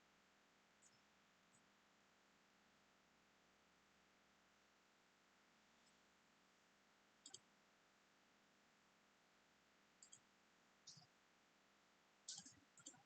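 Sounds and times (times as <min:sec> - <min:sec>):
computer mouse clicks: 0:07.2 - 0:07.5, 0:10.0 - 0:10.3, 0:10.9 - 0:11.1, 0:12.3 - 0:13.0.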